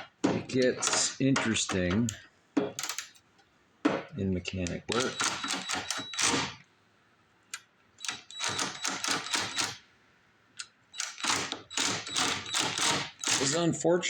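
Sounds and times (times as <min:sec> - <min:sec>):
metal tools clicking and rattling: 0:12.0 - 0:13.6.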